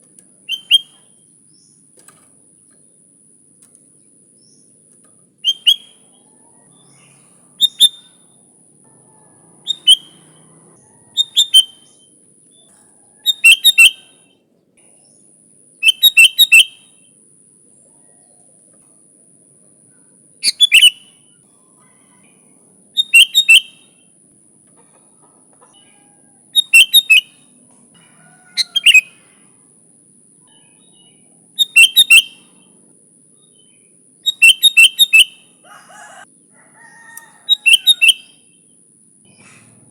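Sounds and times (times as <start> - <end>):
bulbul chattering call: 0.5 - 1.2, 5.4 - 8.5, 9.1 - 14.4, 15.8 - 17.0, 20.4 - 21.8, 23.0 - 24.0, 26.6 - 27.5, 28.2 - 29.4, 30.5 - 32.7, 33.6 - 36.2, 37.5 - 38.7.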